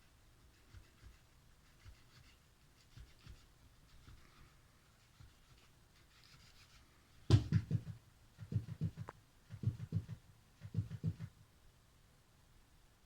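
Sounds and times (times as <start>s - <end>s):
sharp knock: 7.3s - 7.9s
cat scuffling soft thumps: 7.3s - 9.0s.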